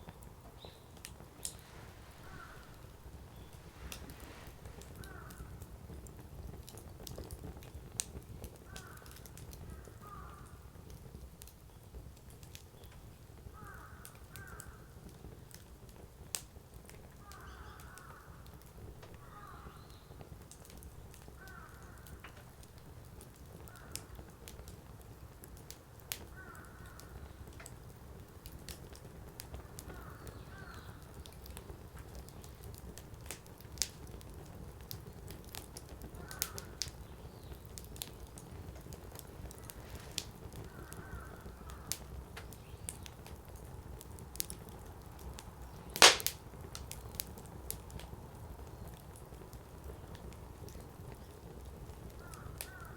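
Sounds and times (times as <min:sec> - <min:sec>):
fire crackling and popping: 0:00.0 - 0:52.9
bird calling: 0:00.6 - 0:03.6.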